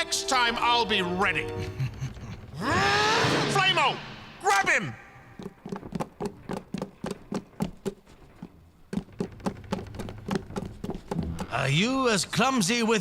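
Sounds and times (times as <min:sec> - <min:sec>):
light footsteps: 0:05.4 - 0:12.3.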